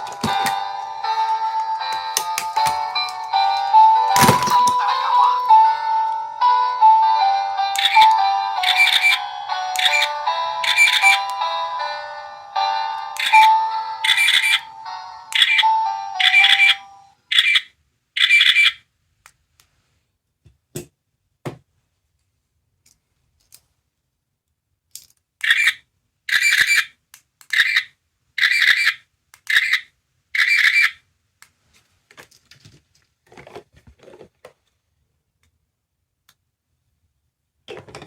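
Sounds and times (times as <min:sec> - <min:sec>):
toy handling clicks and knocks: 0:00.0 - 0:00.6, 0:01.2 - 0:03.4, 0:07.7 - 0:10.1, 0:13.2 - 0:14.6, 0:15.3 - 0:15.6, 0:24.9 - 0:29.8
toy electronic sound effects: 0:07.5 - 0:11.9, 0:12.7 - 0:18.8, 0:25.4 - 0:31.0.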